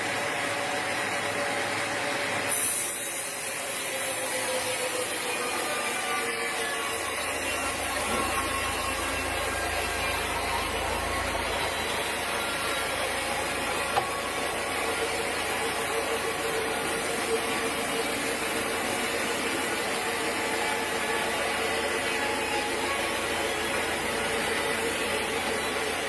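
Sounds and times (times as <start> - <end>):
sawmill machinery humming: 0.0 - 26.0.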